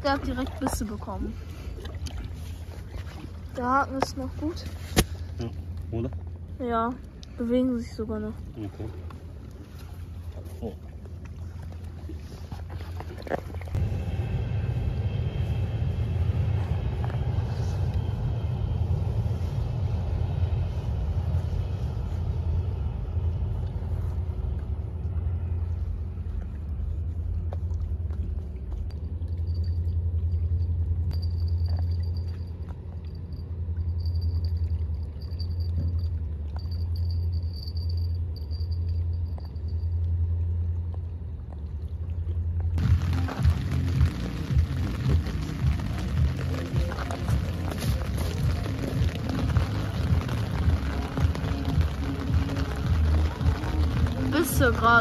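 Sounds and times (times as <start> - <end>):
train rumbling over bridge: 13.8 - 26.6.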